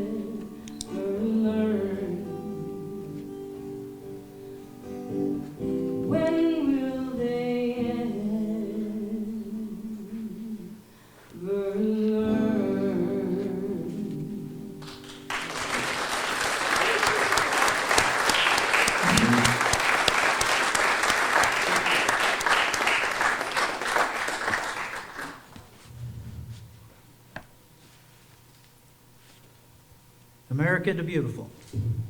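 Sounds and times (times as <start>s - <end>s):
audience applause: 14.8s - 25.6s.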